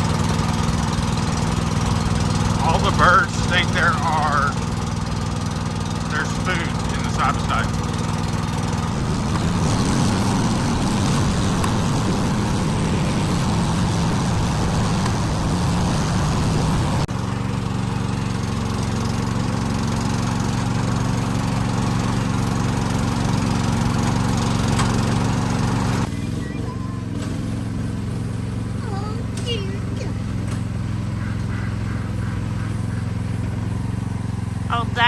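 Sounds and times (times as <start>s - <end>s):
small vehicle engine running: 0.0s - 35.0s.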